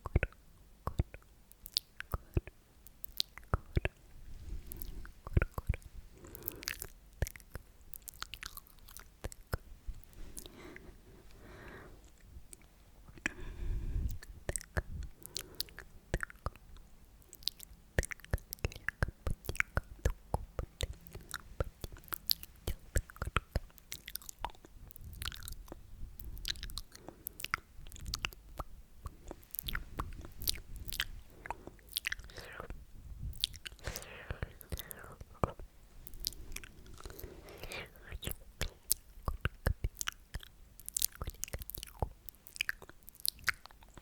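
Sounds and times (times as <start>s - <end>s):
wet mouth clicks and pops: 0.0s - 4.0s, 4.7s - 9.7s, 12.5s - 44.0s.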